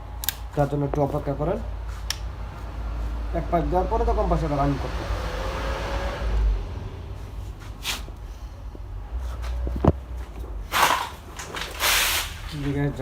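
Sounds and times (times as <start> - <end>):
sharp click: 0.2 - 0.5
brief hiss: 11.8 - 12.5.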